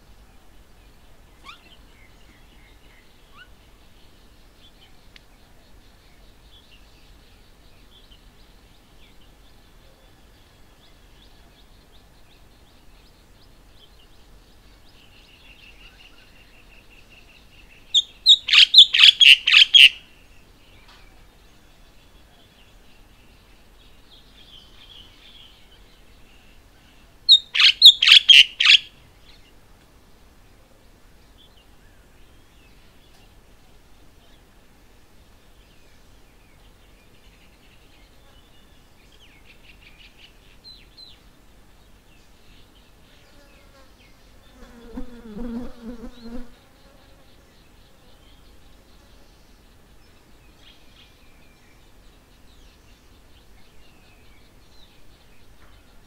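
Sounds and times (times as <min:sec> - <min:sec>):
faint bird chirping: 0:00.0 - 0:56.0
bird calling in harsh notes: 0:18.0 - 0:20.0, 0:27.3 - 0:28.9.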